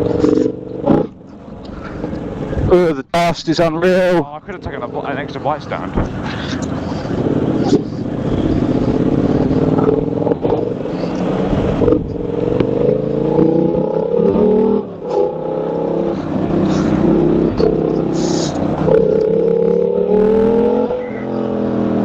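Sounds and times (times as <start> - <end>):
motorcycle engine accelerating: 0.0 - 2.7, 4.5 - 22.0
wind and road noise: 0.0 - 22.0.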